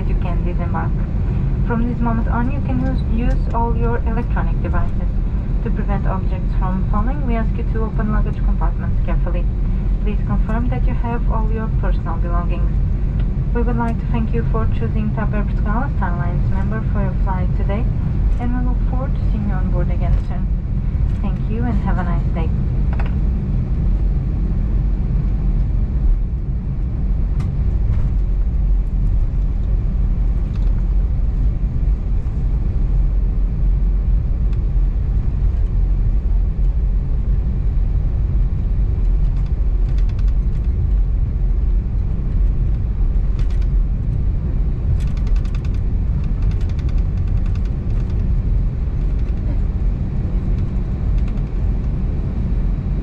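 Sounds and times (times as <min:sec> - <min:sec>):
aircraft cabin rumble: 0:00.0 - 0:53.0.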